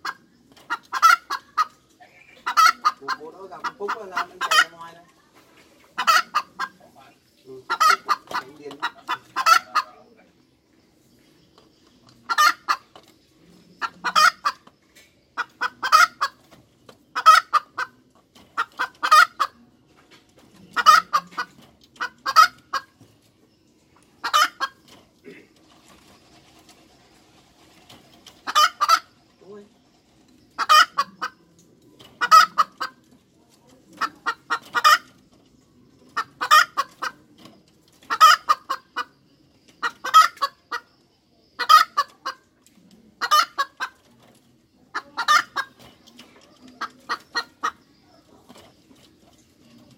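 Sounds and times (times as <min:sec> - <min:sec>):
hen cackling: 0:00.0 - 0:04.9, 0:06.0 - 0:07.0, 0:07.6 - 0:10.2, 0:12.2 - 0:12.9, 0:13.8 - 0:14.7, 0:15.4 - 0:16.4, 0:17.1 - 0:18.0, 0:18.6 - 0:19.6, 0:20.7 - 0:23.0, 0:24.2 - 0:25.6, 0:28.4 - 0:29.2, 0:30.5 - 0:31.4, 0:32.2 - 0:33.0, 0:33.9 - 0:35.2, 0:36.1 - 0:37.2, 0:38.1 - 0:39.1, 0:39.8 - 0:40.9, 0:41.6 - 0:42.5, 0:43.2 - 0:44.0, 0:44.9 - 0:45.8, 0:46.4 - 0:48.4.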